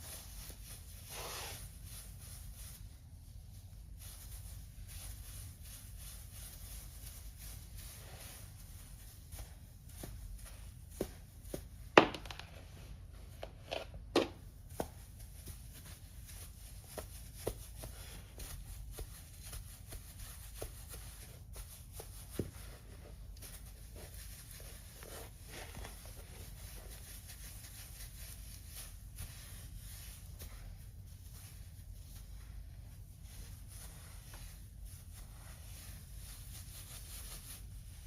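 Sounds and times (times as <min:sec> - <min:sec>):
low steady hum: 0:00.0 - 0:38.0
objects clicking and knocking: 0:12.0 - 0:12.6.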